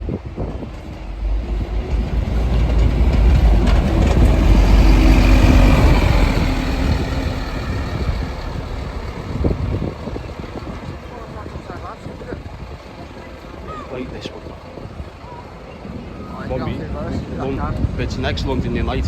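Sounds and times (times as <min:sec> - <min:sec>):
bus driving past: 0:00.0 - 0:13.6.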